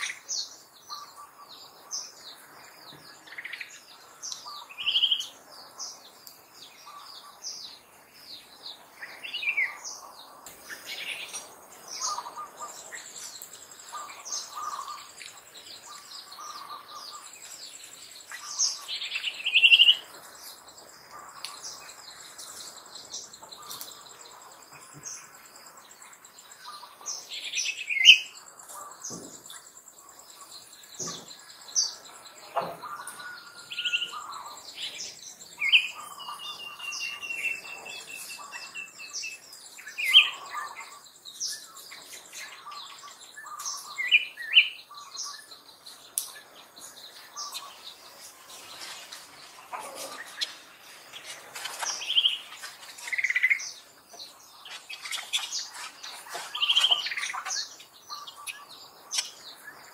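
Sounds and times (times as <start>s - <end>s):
birds calling and chirping: 0.0s - 59.9s.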